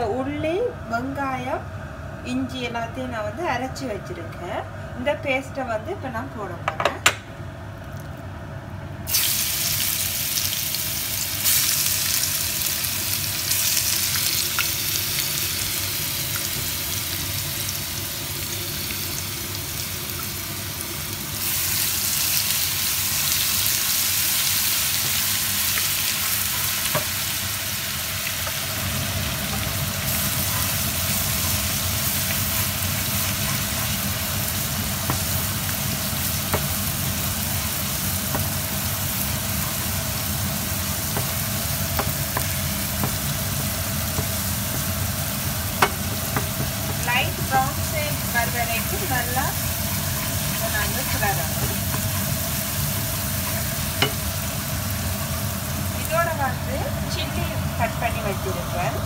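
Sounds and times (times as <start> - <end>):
paste sizzling in hot oil: 9.1 - 57.3.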